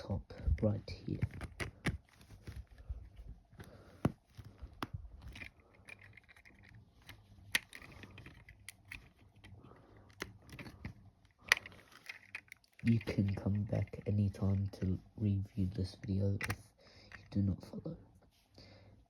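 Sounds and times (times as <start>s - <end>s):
plastic bricks clicking: 0.5s - 2.6s, 4.0s - 14.8s, 16.0s - 17.4s.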